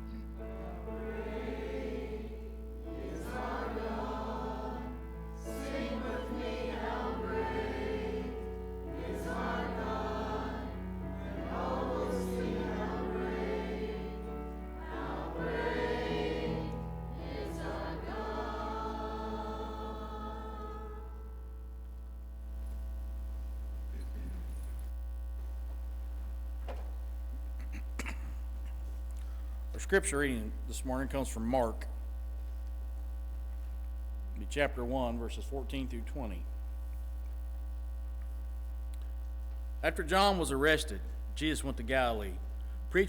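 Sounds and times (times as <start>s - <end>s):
group singing a hymn: 0.0s - 21.5s
steady low hum: 0.0s - 43.0s.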